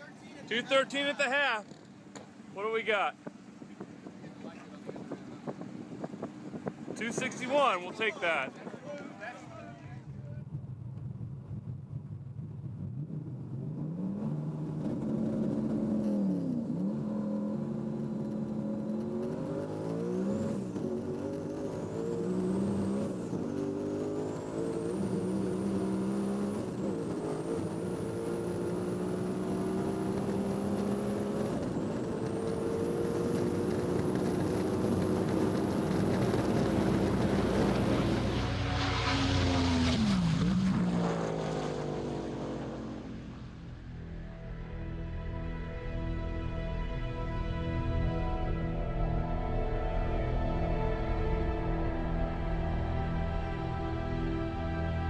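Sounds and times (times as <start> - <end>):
car engine at full throttle: 0.0 - 55.0
wind rush: 3.2 - 13.3.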